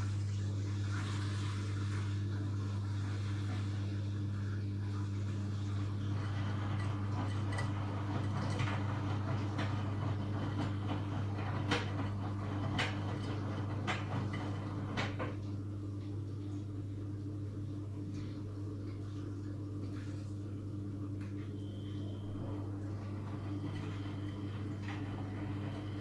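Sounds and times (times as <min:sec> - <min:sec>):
washing machine humming: 0:00.0 - 0:26.0.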